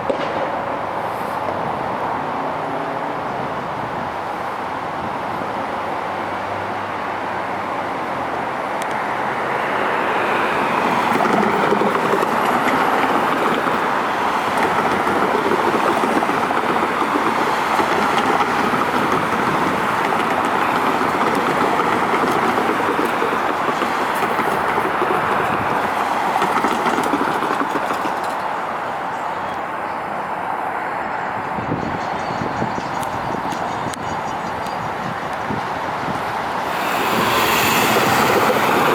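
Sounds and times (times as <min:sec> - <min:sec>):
light rail train passing: 0:00.0 - 0:38.9
wheels rumbling and hissing on rail: 0:00.0 - 0:38.9.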